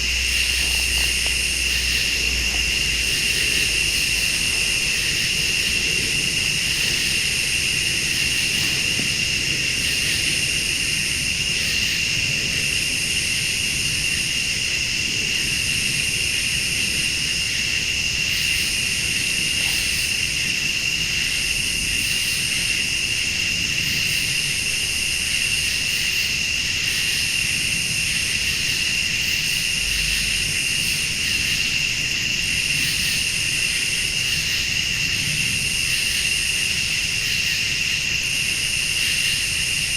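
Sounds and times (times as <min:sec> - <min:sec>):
low steady rumble: 0:00.0 - 0:13.8
buzzing insect call: 0:00.0 - 0:39.9
crickets trilling: 0:00.0 - 0:39.9.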